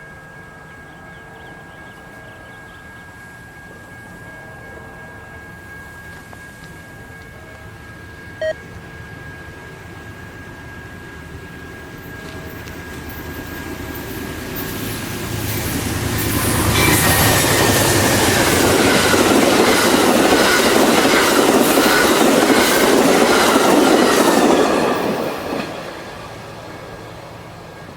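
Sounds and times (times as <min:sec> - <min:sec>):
train wheels squealing: 0:00.0 - 0:27.9
train wheels clacking on rails: 0:09.2 - 0:27.9.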